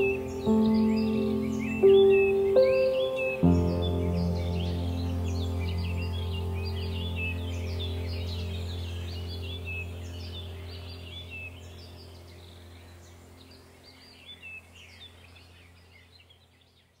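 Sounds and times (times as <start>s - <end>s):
background music: 0.0s - 11.2s
small birds chirping: 0.0s - 17.0s.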